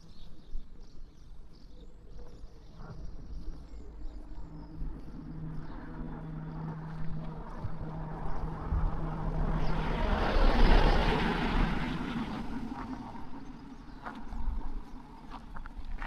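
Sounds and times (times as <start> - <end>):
motor vehicle passing by: 4.7 - 14.2.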